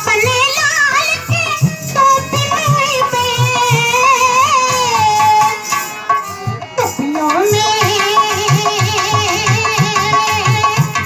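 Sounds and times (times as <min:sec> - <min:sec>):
hand drum beat: 0:01.3 - 0:05.0.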